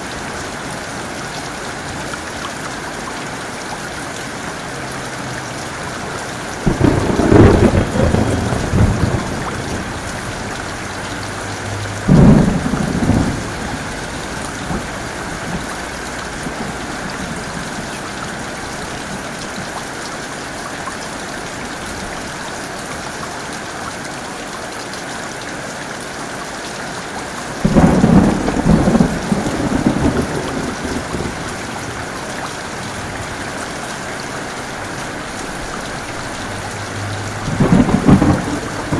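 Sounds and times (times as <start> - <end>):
heavy rain falling: 0.0 - 38.9
thunder rolling: 6.6 - 19.3, 27.6 - 38.9.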